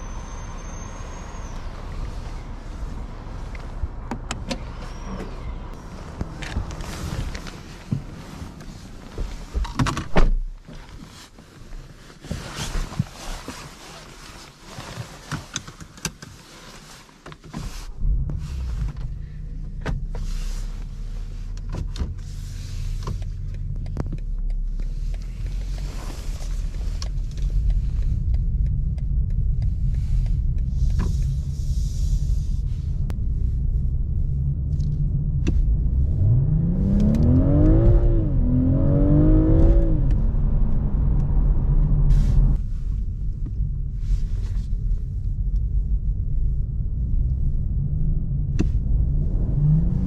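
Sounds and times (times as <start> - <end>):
car engine and tyre rumble: 0.0 - 50.0.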